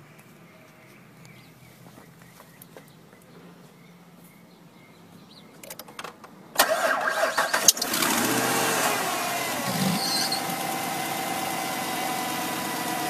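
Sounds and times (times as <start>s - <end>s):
car engine starting and idling: 6.5s - 13.0s.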